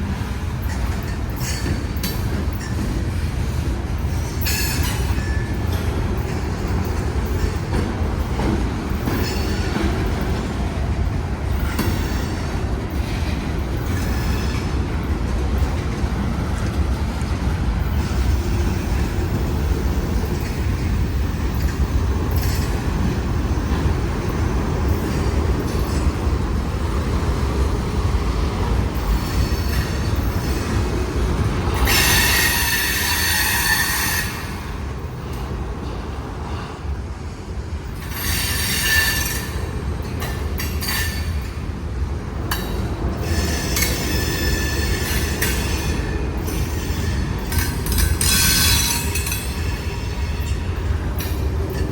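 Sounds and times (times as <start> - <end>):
freight train rumbling: 0.0 - 51.9
train wheels squealing: 0.2 - 10.5, 11.5 - 15.2, 17.9 - 26.4, 29.0 - 31.0, 31.8 - 34.9, 37.9 - 41.6, 42.6 - 51.9.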